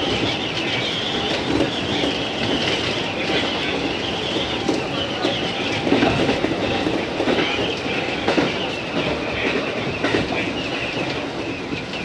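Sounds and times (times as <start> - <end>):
train running noise: 0.0 - 12.0
wheels clacking over rail joints: 0.0 - 12.0.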